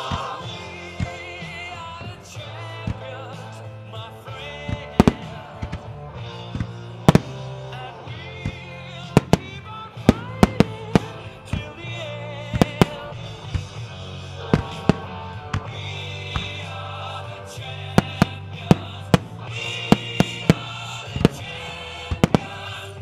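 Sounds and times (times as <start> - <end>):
person singing a song: 0.0 - 6.0, 7.1 - 23.0
steady bass accompaniment: 0.0 - 23.0
fireworks sharp bangs: 4.6 - 16.8, 17.9 - 23.0.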